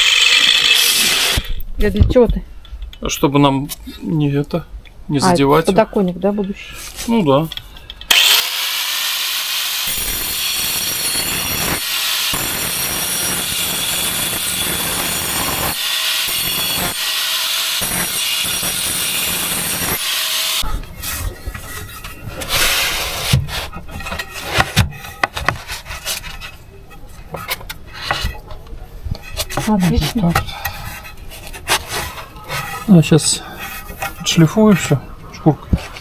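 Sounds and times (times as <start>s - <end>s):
power sander whining: 0.0s - 1.6s, 8.1s - 20.7s
scraping and rubbing: 9.9s - 35.0s.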